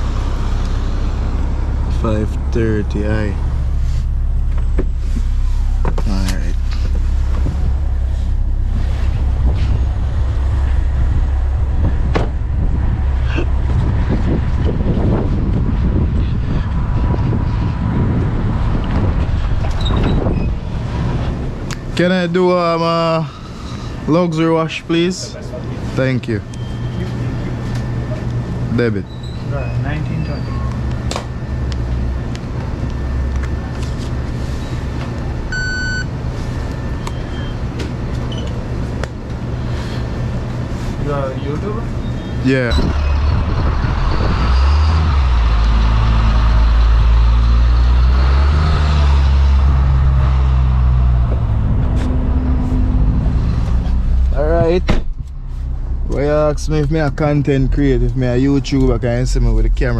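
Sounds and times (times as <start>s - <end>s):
car engine idling: 0.0s - 16.8s, 49.4s - 59.9s
wind rumble on microphone: 0.0s - 22.0s, 42.3s - 56.2s
car moving slowly: 0.0s - 59.9s
short electronic beep: 35.5s - 36.1s.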